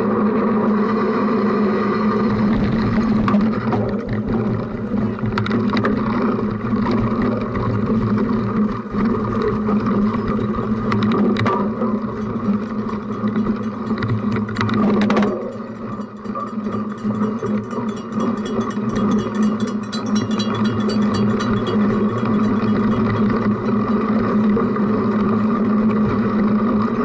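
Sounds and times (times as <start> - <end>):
tyres and wind drone: 0.0 - 27.0
bike knocks and rattles: 2.6 - 17.7.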